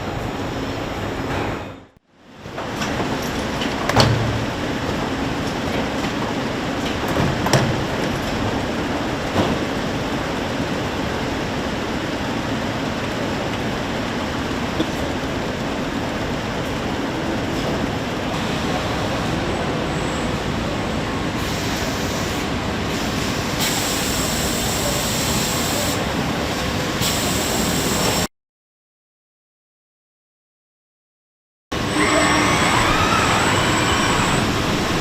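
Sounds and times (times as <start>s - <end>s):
factory machinery rumble: 31.8s - 35.0s.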